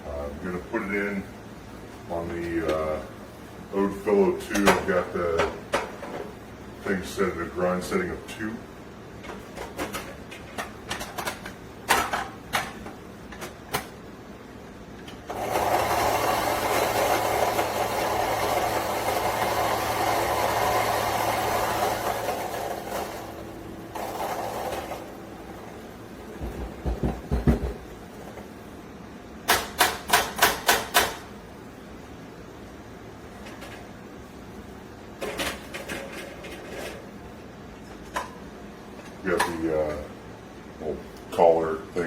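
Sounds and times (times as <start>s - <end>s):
electric coffee grinder grinding: 15.3s - 25.8s.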